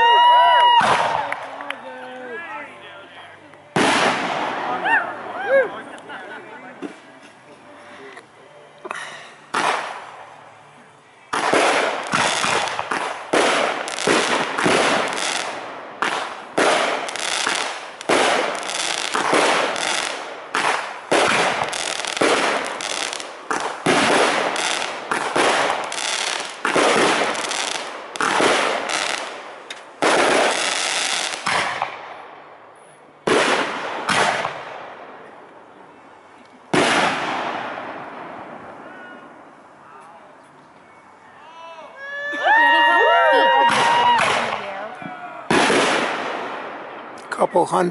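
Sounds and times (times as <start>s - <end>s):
firework shells bursting: 11.3s - 32.2s.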